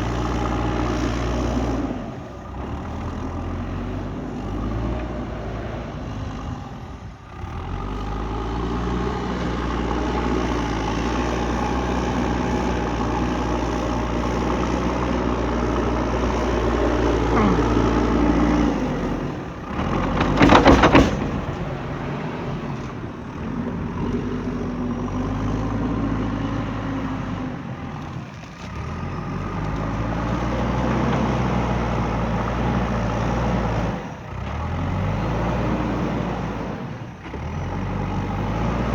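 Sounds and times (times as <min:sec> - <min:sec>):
diesel engine under load: 0:00.0 - 0:38.9
loud brief rattle: 0:20.0 - 0:21.8.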